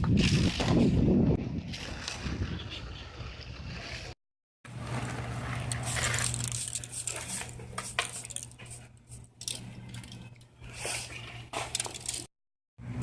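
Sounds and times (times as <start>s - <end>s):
hard objects clinking and scraping: 5.7s - 8.7s.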